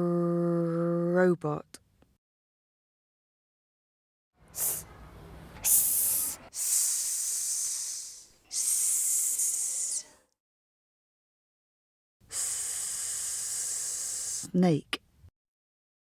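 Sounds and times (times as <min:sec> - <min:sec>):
person making hissing s sound: 0:04.5 - 0:05.0, 0:05.6 - 0:10.3, 0:12.2 - 0:14.6.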